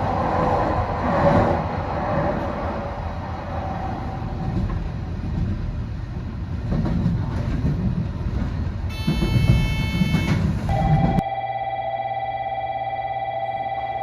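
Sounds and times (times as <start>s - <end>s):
train wheels clickety-clack: 0.0s - 11.2s
train wheels rumbling on rails: 0.0s - 11.2s
high electronic tone: 8.9s - 14.0s.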